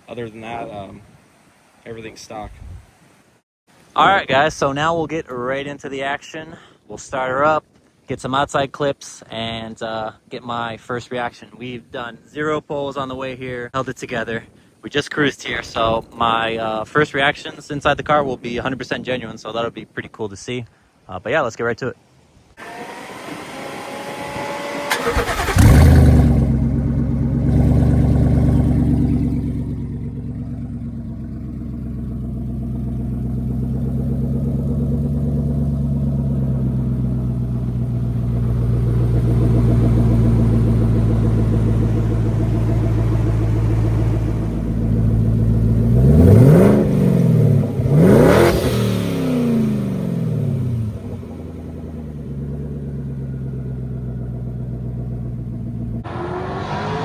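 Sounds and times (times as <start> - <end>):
starter cranking engine: 22.6 - 31.7
truck engine idling and revving: 22.6 - 57.0.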